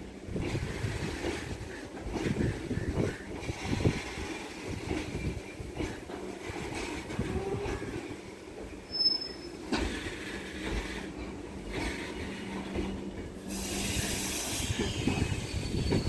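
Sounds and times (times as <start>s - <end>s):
freight train wheels rumbling: 0.0s - 16.0s
train brake squeal: 8.8s - 11.1s, 13.4s - 16.0s.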